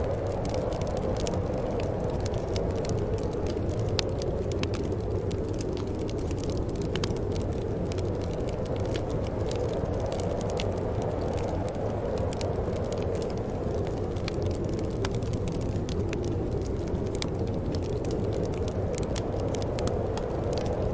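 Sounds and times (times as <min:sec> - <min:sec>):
low wind noise: 0:00.0 - 0:20.9
wood fire crackling: 0:00.0 - 0:20.9.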